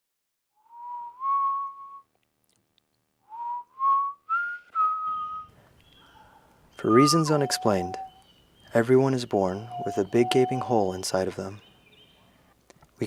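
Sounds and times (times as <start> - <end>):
person whistling melody: 0.6 - 2.1, 3.3 - 5.5, 6.8 - 8.2, 9.7 - 10.8.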